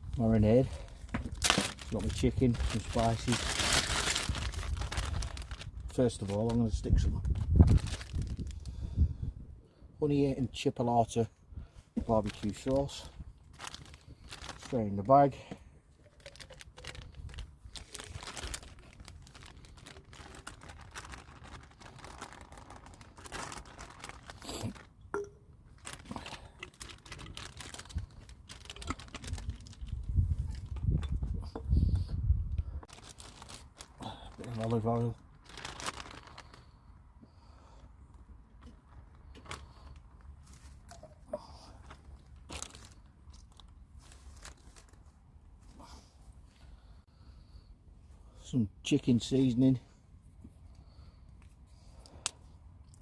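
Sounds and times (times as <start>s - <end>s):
plastic bag crinkling: 0.0s - 8.8s, 12.1s - 15.4s, 16.0s - 25.0s, 25.6s - 31.0s, 32.9s - 36.8s, 41.8s - 45.1s.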